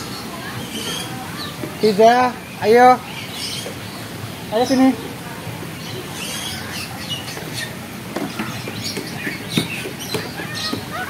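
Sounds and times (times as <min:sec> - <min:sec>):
small birds chirping: 0:00.0 - 0:11.0
steady background noise: 0:00.0 - 0:11.0.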